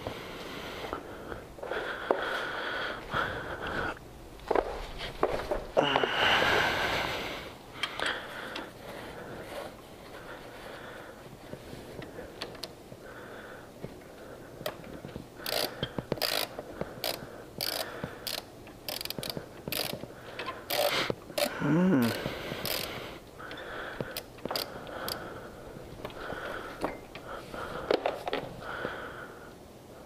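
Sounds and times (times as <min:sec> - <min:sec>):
socket ratchet clicking: 0:15.4 - 0:23.0, 0:24.1 - 0:25.2.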